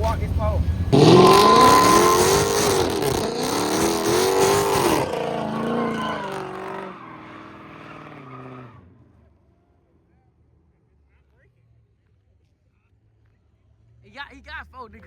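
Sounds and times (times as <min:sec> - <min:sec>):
car engine revving hard: 0:00.9 - 0:08.8
tyres squealing: 0:01.0 - 0:08.7.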